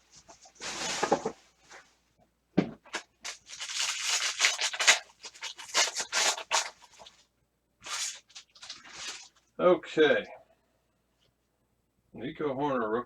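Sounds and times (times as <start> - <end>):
foil wrapper crinkling and tearing: 2.9 - 7.2, 7.8 - 9.4.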